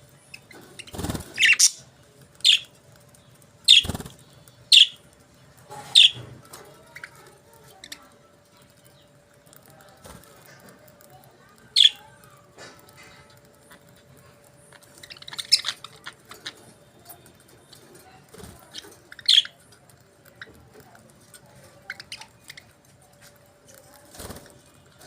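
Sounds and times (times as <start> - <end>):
budgerigars chirping: 0.6 - 1.8, 2.4 - 2.7, 3.7 - 4.1, 4.7 - 5.0, 6.0 - 6.3, 14.9 - 16.6, 19.1 - 19.6.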